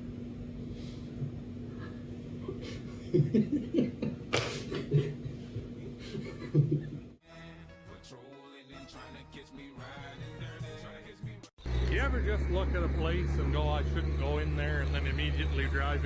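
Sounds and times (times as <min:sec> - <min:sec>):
person laughing: 0:01.8 - 0:07.2
music: 0:07.2 - 0:11.5
machine hum: 0:11.6 - 0:16.0.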